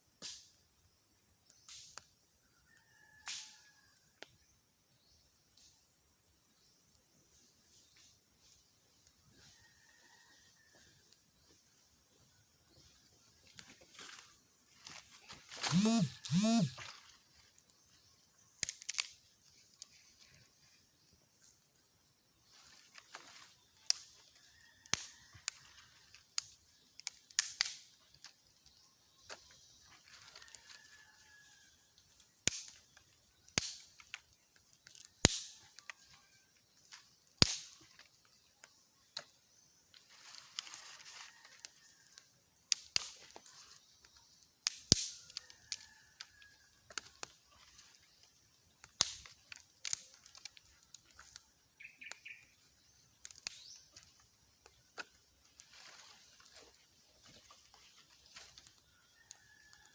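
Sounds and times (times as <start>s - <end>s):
sharp clicks and snaps: 15.7s - 16.7s, 18.6s - 19.2s, 26.4s - 27.8s, 48.8s - 51.4s.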